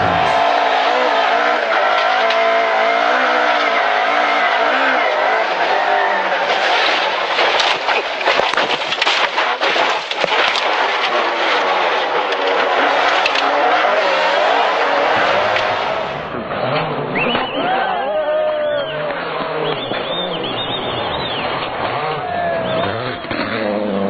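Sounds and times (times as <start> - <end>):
rally car engine revving: 0.0 - 24.0
sharp cracks and clatter: 0.8 - 17.6.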